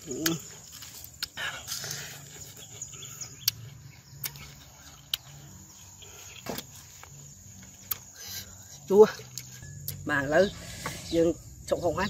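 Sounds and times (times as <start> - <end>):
person chewing fruit: 0.0 - 10.0
insects chirring: 0.0 - 12.0
sharp clicks and crunches: 0.1 - 2.0.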